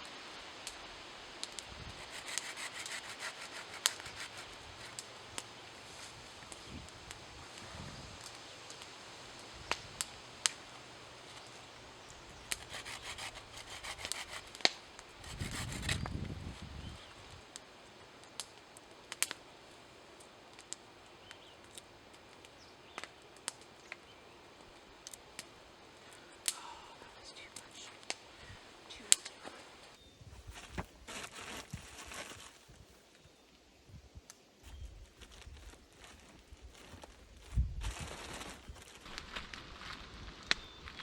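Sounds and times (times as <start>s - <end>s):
rustling: 0.0s - 33.4s, 34.6s - 41.0s
rubbing noise: 1.8s - 5.2s, 12.5s - 16.8s
sharp clicks and snaps: 24.6s - 28.4s.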